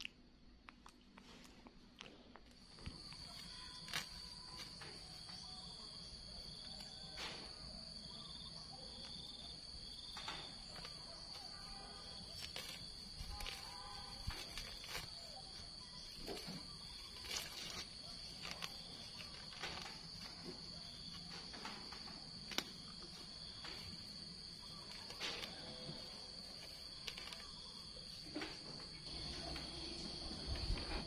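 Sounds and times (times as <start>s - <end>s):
insect chirring: 2.6s - 31.0s
weeds pulled from soil: 10.7s - 21.6s.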